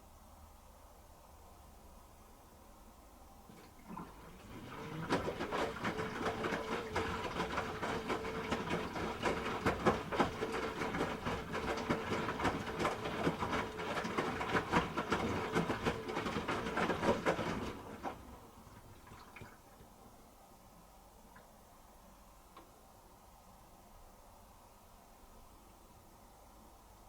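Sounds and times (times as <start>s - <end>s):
washing machine drum turning: 3.5s - 19.5s.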